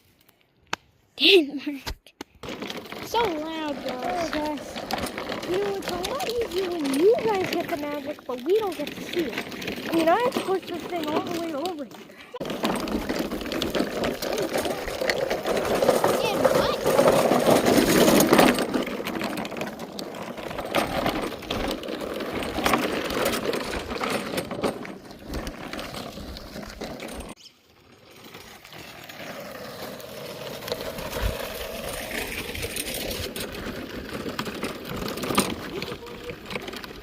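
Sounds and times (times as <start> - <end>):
lawnmower panels rattling: 2.4 - 27.4, 29.8 - 37.0.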